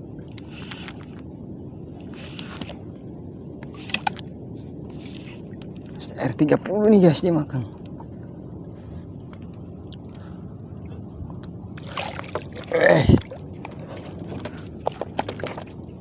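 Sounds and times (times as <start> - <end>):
small boat on the sea: 0.0 - 16.0.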